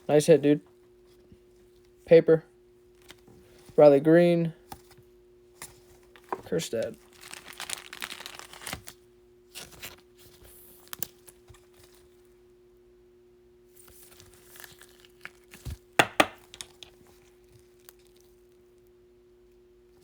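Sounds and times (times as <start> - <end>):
foil wrapper tearing and crinkling: 6.1 - 12.2, 13.9 - 18.4.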